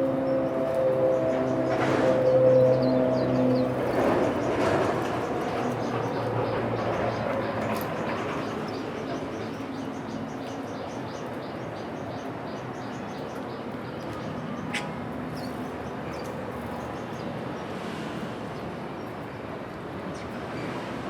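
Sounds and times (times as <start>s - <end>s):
small birds chirping: 2.6s - 17.8s.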